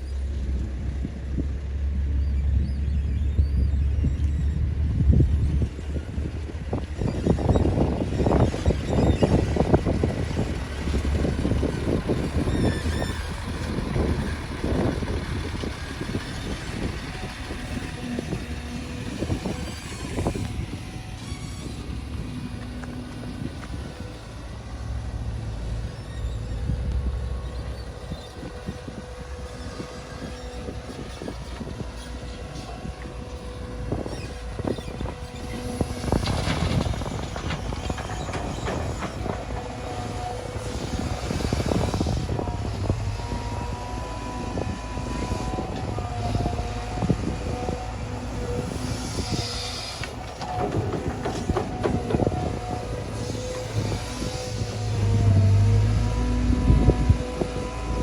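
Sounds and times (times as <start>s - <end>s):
heavy machinery engine rumble: 0.0s - 58.0s
knocks and clatter: 49.9s - 54.5s.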